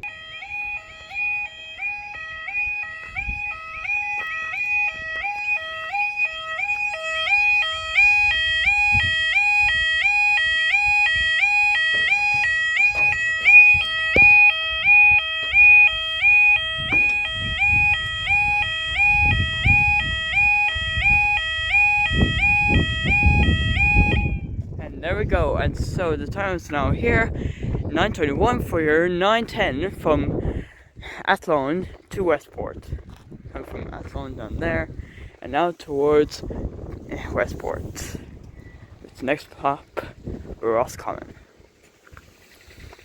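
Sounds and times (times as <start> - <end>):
level crossing alarm warbling: 0.0 - 25.8.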